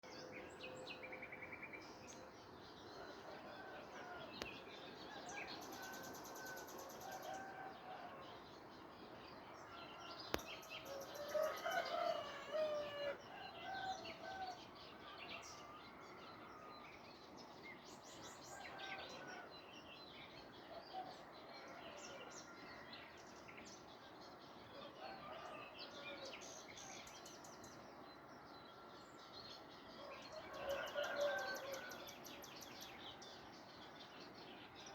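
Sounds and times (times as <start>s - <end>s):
birds chirping and trilling: 0.0s - 34.9s.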